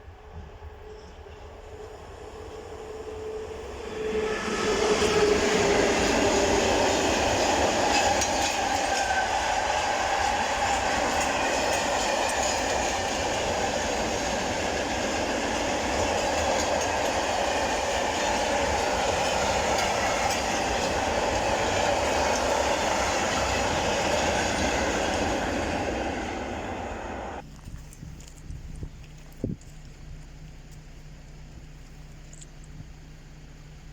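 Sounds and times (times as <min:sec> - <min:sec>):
train wheels clattering over joints: 0:04.7 - 0:26.2.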